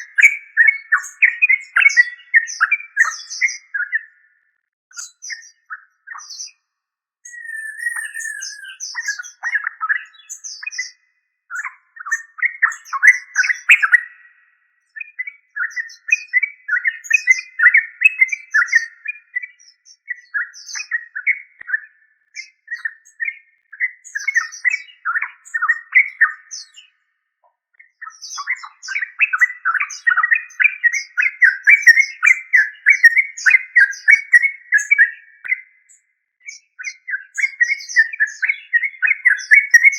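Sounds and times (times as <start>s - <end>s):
bulbul singing bubbly chattering: 7.3s - 9.0s.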